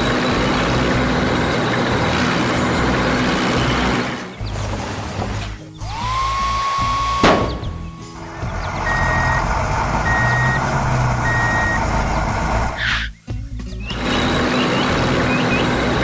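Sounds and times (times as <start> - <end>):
engine running: 0.0 - 16.0
rising tone: 5.8 - 12.8
reversing alarm beeps: 5.9 - 12.1.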